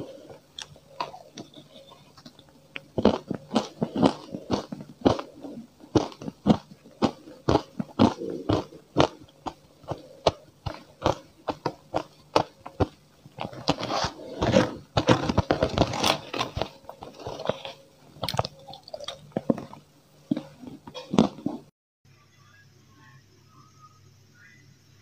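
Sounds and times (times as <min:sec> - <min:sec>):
chewing crunchy ice: 0:00.0 - 0:21.7
metal spoon scraping plastic tray: 0:13.4 - 0:18.5.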